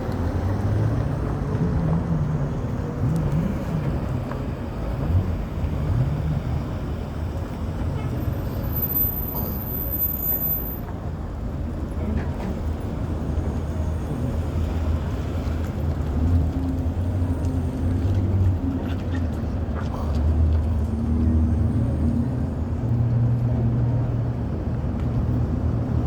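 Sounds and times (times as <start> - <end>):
traffic noise: 0.0 - 26.0
vehicle engine rumble: 0.0 - 26.0.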